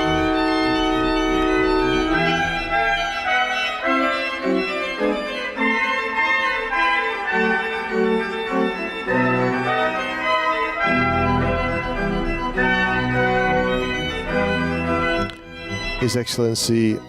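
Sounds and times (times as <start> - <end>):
organ playing chords: 0.0 - 17.0.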